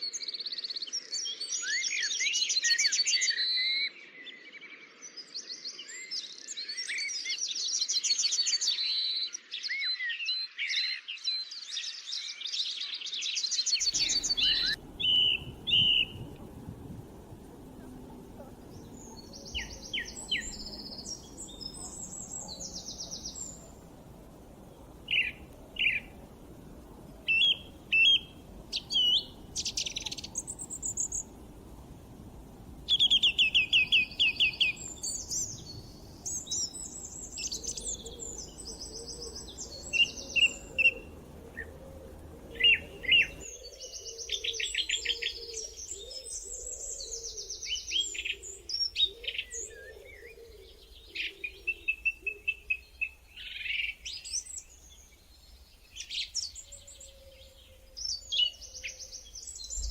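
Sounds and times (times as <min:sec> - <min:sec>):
songbirds singing and chirping: 0:00.0 - 0:59.9
low steady background hiss: 0:13.5 - 0:59.9.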